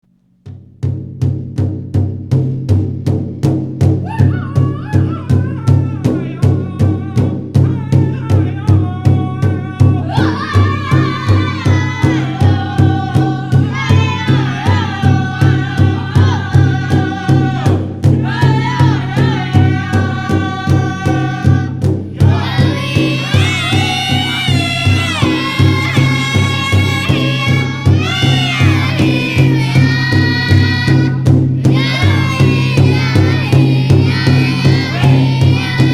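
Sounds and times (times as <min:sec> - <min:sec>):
large drum beating: 0:00.4 - 0:35.9
voices singing in unison: 0:08.3 - 0:35.9.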